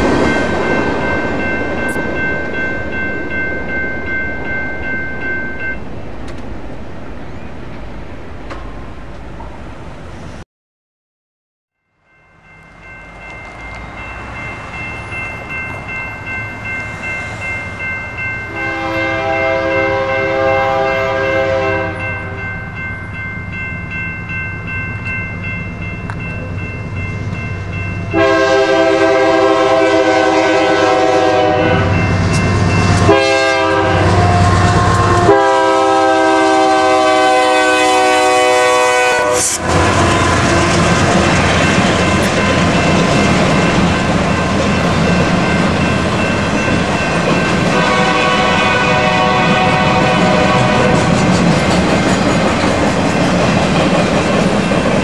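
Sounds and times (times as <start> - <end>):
train rumbling: 0.0 - 10.4, 12.1 - 55.0
locomotive air horn blasts: 18.5 - 22.4, 28.1 - 32.0, 33.0 - 40.9, 47.7 - 51.1.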